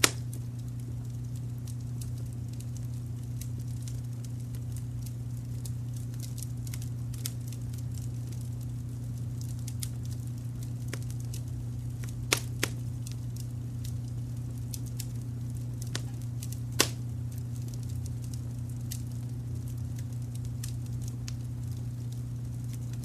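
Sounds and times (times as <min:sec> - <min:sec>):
sharp pops: 0:00.0 - 0:00.4, 0:12.0 - 0:12.8, 0:15.8 - 0:17.0
wood fire crackling: 0:00.0 - 0:23.0.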